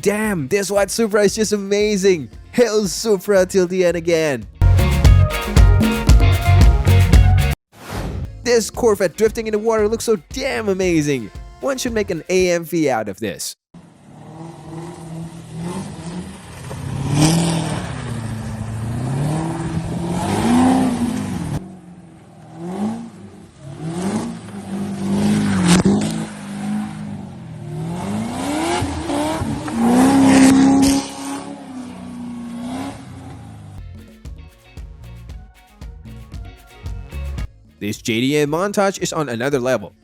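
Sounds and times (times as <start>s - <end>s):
car engine revving hard: 13.8s - 33.8s.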